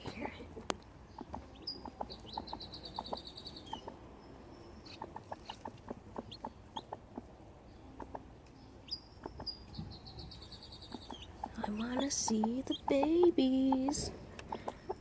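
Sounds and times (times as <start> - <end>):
chicks peeping: 0.0 - 15.0
hen softly clucking: 0.1 - 4.1, 4.8 - 8.3, 10.8 - 15.0.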